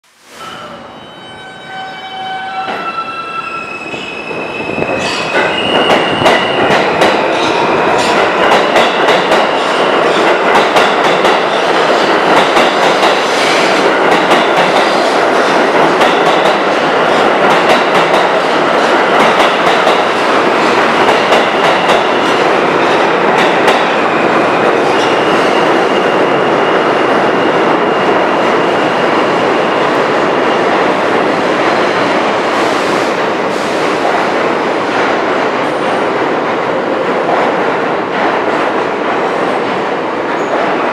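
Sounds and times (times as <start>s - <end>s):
subway train wheels rumbling on rail: 0.1s - 40.9s
high wheel squeal: 0.4s - 6.6s.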